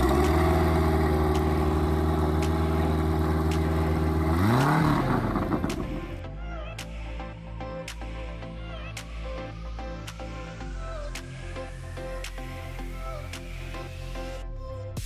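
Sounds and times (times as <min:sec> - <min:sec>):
engine running: 0:00.0 - 0:06.3.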